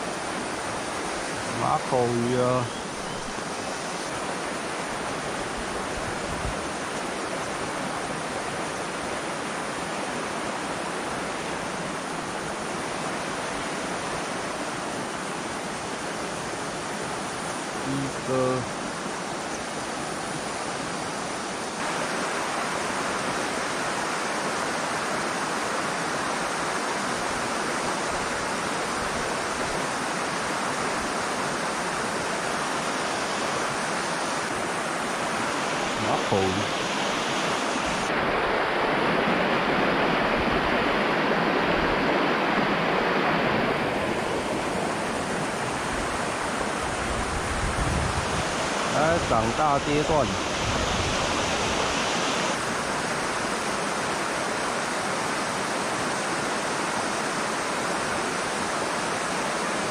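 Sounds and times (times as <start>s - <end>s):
river rushing over stones: 0.0s - 59.9s.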